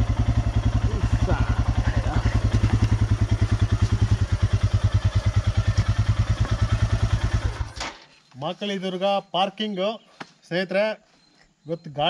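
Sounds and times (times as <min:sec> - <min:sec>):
motorcycle engine idling: 0:00.0 - 0:07.8.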